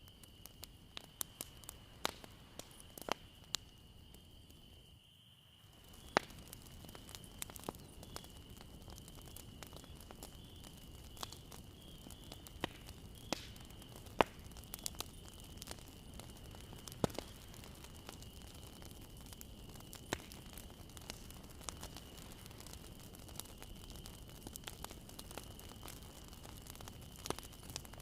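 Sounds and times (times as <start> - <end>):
bonfire crackling and popping: 0.0 - 28.0
rush of flame: 5.7 - 28.0.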